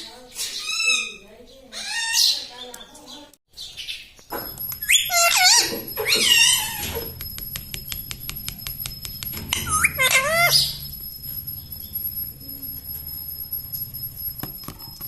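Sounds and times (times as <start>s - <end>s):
parrot calling: 4.3s - 7.2s, 9.3s - 12.2s
fast faint clicks: 7.1s - 9.4s
faint high whine: 7.1s - 15.0s.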